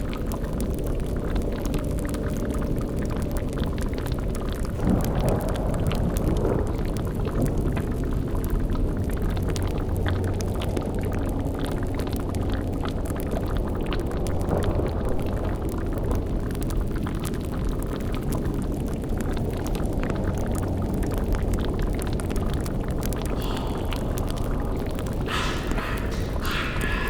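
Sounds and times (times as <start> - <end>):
fire crackling: 0.6 - 27.0
cauldron bubbling: 10.0 - 27.0
low rumbling drone: 13.8 - 16.8, 22.2 - 27.0.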